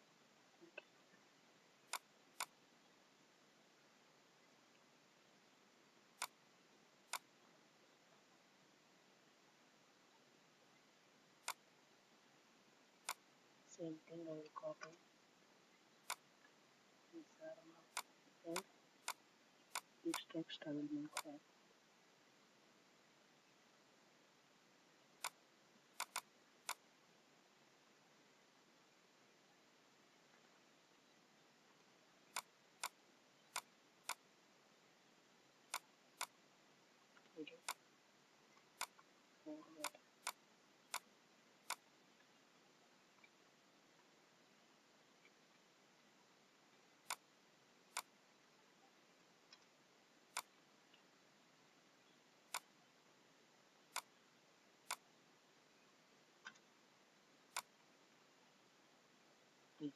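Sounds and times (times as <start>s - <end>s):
faint background hiss: 0.0s - 59.9s
computer mouse clicks: 1.9s - 2.6s, 6.2s - 6.4s, 7.1s - 7.3s, 11.4s - 11.7s, 13.0s - 13.3s, 16.0s - 16.5s, 17.9s - 20.3s, 21.1s - 21.4s, 25.2s - 26.9s, 32.3s - 34.3s, 35.6s - 36.4s, 37.1s - 37.8s, 38.6s - 41.9s, 47.0s - 47.3s, 47.9s - 48.2s, 49.4s - 51.0s, 52.5s - 52.8s, 53.9s - 54.2s, 54.8s - 55.1s, 56.4s - 56.7s, 57.5s - 57.8s.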